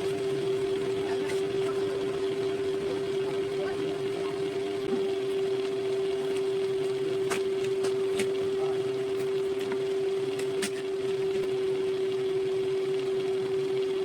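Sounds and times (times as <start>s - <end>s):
small electric motor humming: 0.0s - 14.0s.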